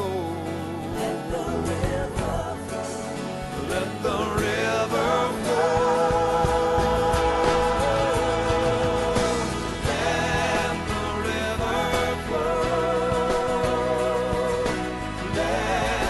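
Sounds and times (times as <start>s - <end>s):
instrumental accompaniment: 0.0s - 16.0s
person singing worship song: 0.0s - 16.0s.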